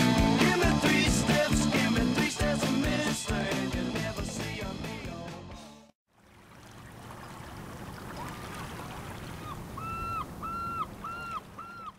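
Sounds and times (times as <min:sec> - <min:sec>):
rock music: 0:00.0 - 0:05.9
water washing: 0:06.2 - 0:11.9
bird calling: 0:08.2 - 0:11.9.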